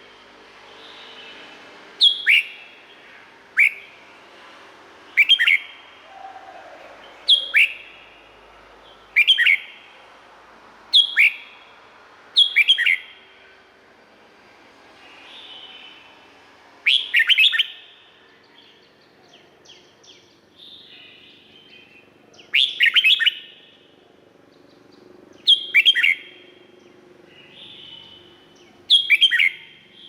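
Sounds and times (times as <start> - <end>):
bird singing whistles: 2.0 - 2.8, 3.6 - 3.9, 5.2 - 5.8, 7.3 - 8.0, 9.2 - 9.8, 10.9 - 11.5, 12.4 - 13.2, 16.8 - 18.0, 19.7 - 23.7, 25.5 - 26.4, 27.4 - 30.0.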